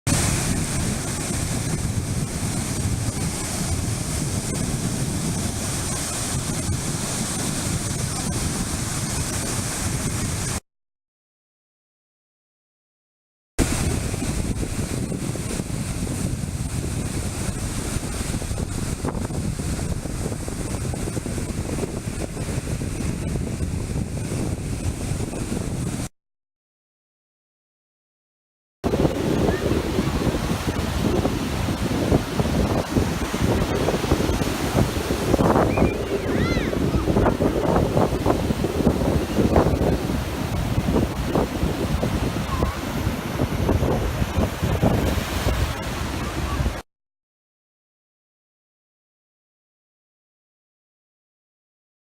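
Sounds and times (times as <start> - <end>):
surf breaking on beach: 0.1 - 10.6, 13.6 - 26.1, 28.8 - 46.8
wind buffeting microphone: 0.1 - 10.6, 13.6 - 26.1, 28.8 - 46.8.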